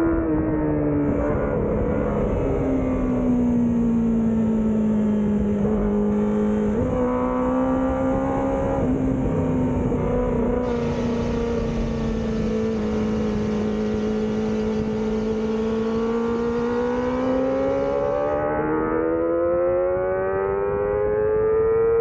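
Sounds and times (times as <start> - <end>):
motorcycle engine running: 1.0 - 18.4.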